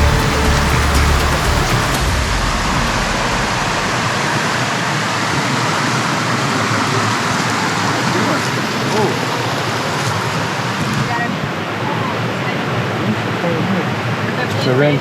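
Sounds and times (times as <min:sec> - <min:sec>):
low rumble: 0:00.0 - 0:05.6
water rushing in a creek: 0:00.0 - 0:15.0.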